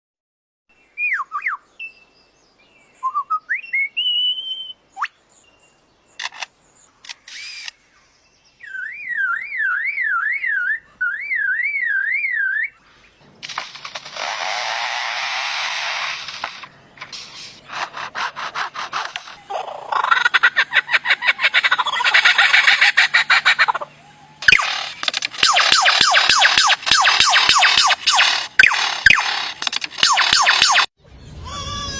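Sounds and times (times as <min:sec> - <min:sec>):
bird whistled calls: 0:00.9 - 0:02.1, 0:03.0 - 0:05.2, 0:08.6 - 0:12.8
bird rapid clicking: 0:06.2 - 0:07.8, 0:13.4 - 0:14.6, 0:24.4 - 0:30.9
bird harsh hissing: 0:13.8 - 0:20.1.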